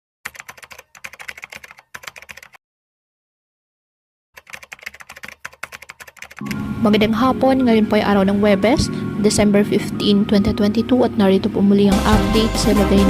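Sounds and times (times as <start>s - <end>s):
keyboard typing clicks: 0.3s - 2.6s, 4.4s - 6.6s.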